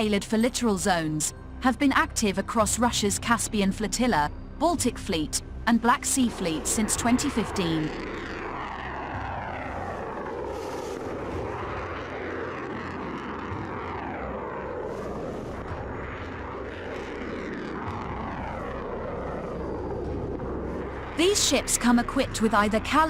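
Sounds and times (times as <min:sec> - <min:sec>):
aircraft passing overhead: 0:05.5 - 0:23.0.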